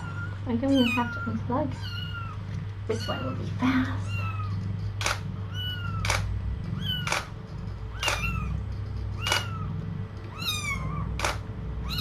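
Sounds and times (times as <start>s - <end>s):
kittens mewing: 0.0s - 4.8s, 5.4s - 7.3s, 7.9s - 11.2s
sharp click: 5.0s - 5.2s, 6.0s - 6.3s, 7.0s - 7.3s, 8.0s - 8.3s.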